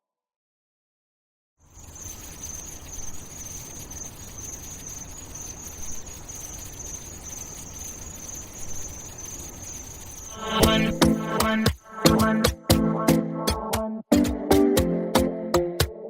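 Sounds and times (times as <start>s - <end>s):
high-pitched insect chirring: 1.6s - 12.6s.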